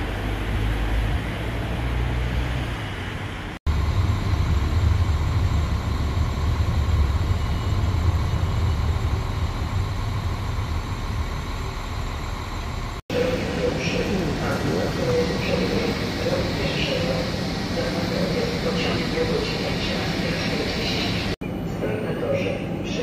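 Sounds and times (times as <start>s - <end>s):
nearby traffic: 0.0s - 4.7s
trains rumbling: 0.0s - 23.0s.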